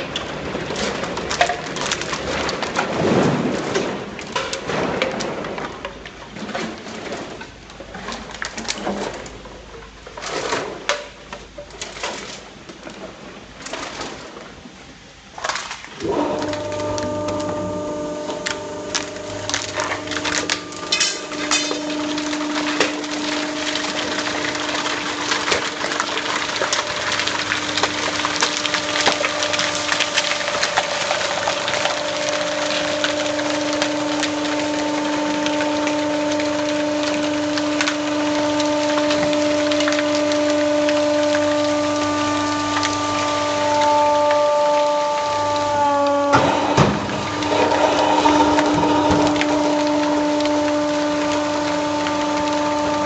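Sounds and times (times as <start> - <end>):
plastic bottles crackling as crushed: 0.0 - 14.3, 15.3 - 53.0
hydraulic pump humming: 16.0 - 53.0.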